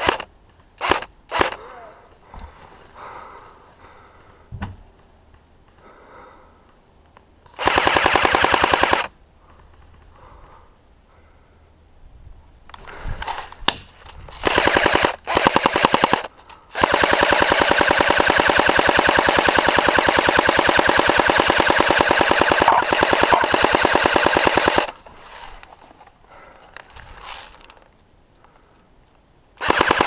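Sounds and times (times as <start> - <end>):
airsoft rifle firing bursts: 0.0 - 1.6, 7.6 - 9.1, 14.4 - 25.0, 29.6 - 30.0.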